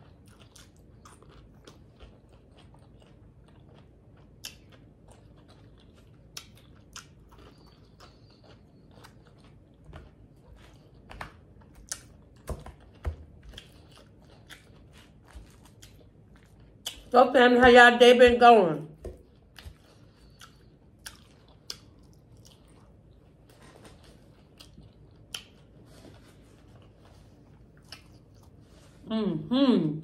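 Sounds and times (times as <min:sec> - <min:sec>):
person chewing salad: 0:00.0 - 0:17.2, 0:18.9 - 0:29.1.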